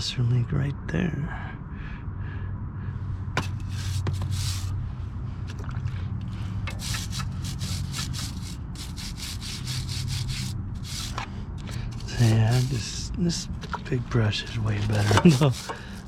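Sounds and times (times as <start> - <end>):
steady low hum: 0.0 - 16.0
brush scrubbing a chain: 3.4 - 4.8, 6.7 - 16.0.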